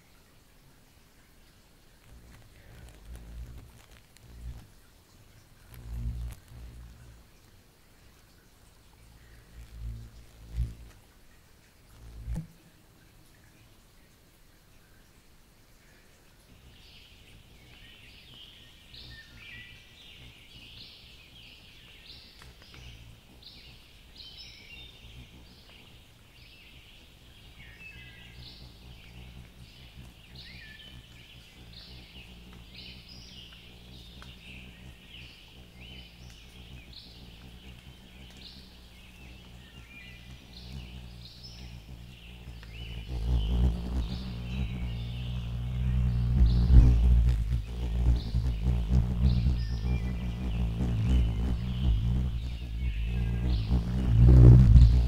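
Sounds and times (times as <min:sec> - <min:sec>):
songbirds singing: 0:00.0 - 0:55.0
faint low rumble: 0:01.8 - 0:13.4, 0:26.3 - 0:55.0.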